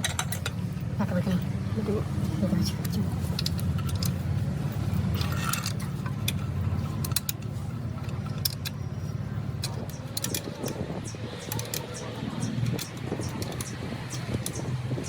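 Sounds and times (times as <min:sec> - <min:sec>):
metal tools clinking: 0:00.0 - 0:00.6, 0:02.8 - 0:10.8.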